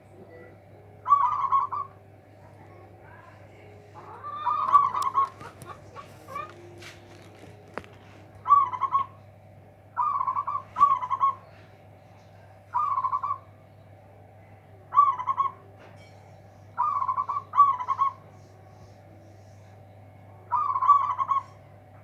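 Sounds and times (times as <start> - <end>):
dove cooing: 0.0 - 13.6, 14.8 - 16.0, 16.6 - 19.7, 20.4 - 22.0
low steady hum: 0.0 - 22.0.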